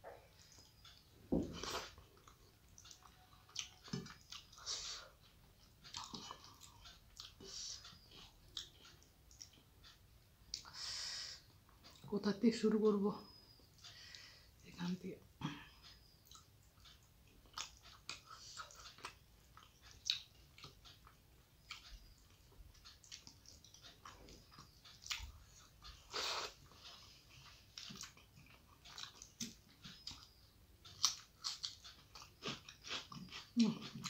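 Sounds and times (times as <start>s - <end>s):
chewing clicks and crunches: 16.2s - 25.7s, 26.8s - 34.0s.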